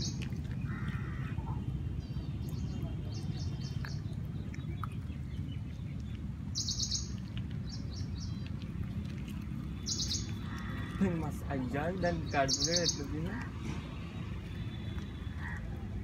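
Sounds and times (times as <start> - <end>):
steady low rumble: 0.0 - 12.4
small birds chirping: 0.0 - 16.0.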